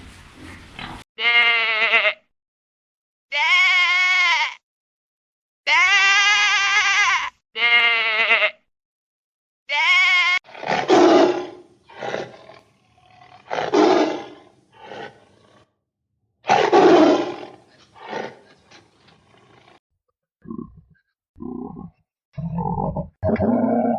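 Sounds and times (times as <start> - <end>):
goat bleating: 1.2 - 2.2, 3.3 - 4.6, 5.7 - 8.6, 9.7 - 10.4
tiger roaring and grunting: 10.5 - 15.7, 16.5 - 19.8, 21.4 - 23.9.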